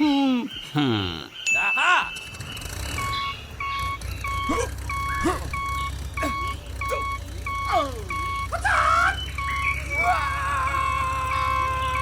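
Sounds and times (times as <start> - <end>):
electronic two-tone beeping: 2.1 - 8.6.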